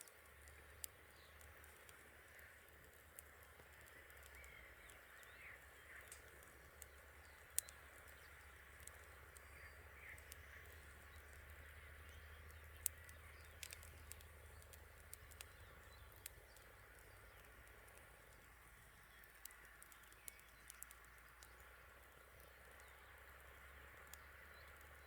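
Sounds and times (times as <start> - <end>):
burning wood popping: 0.0 - 25.0
campfire crackling: 0.0 - 25.0
faint chirping calls: 0.0 - 25.0.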